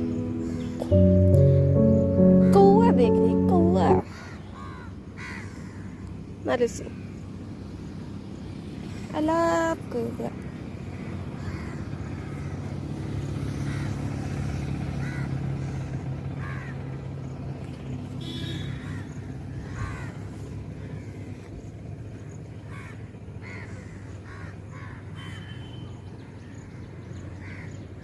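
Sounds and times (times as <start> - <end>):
low steady hum: 0.0 - 4.1
crows cawing: 4.1 - 6.1, 10.4 - 13.0, 13.6 - 14.3, 14.9 - 16.9, 18.2 - 21.6, 22.6 - 25.6, 26.3 - 27.8.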